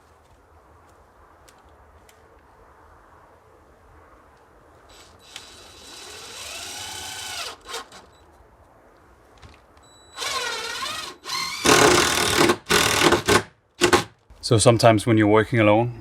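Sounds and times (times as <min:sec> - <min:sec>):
cordless drill driving a screw: 0:04.9 - 0:08.1, 0:10.2 - 0:14.1
loud burst of noise: 0:10.2 - 0:14.1.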